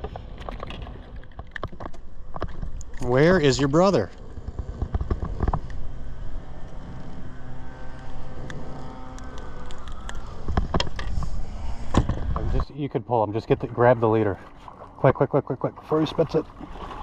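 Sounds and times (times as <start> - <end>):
wind rumble on microphone: 0.0 - 12.8
motor humming: 1.0 - 12.7.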